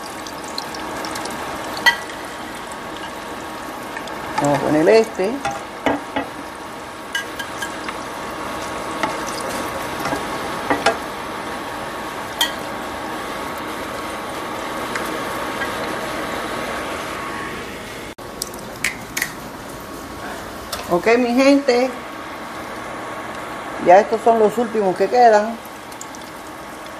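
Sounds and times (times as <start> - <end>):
fritters sizzling in hot oil: 0.0 - 16.6, 25.6 - 26.9.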